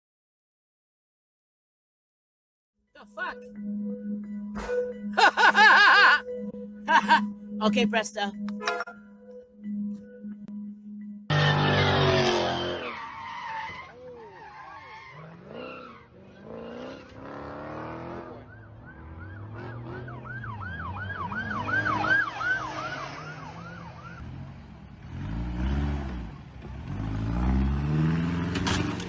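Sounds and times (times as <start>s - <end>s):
vehicle engine: 11.3s - 29.0s
emergency siren yelping: 18.1s - 24.2s.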